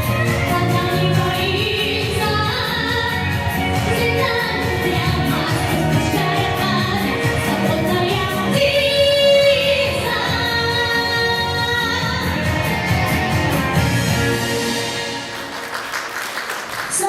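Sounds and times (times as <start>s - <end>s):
woman singing pop ballad: 0.0s - 13.0s
instrumental backing music: 0.0s - 17.0s.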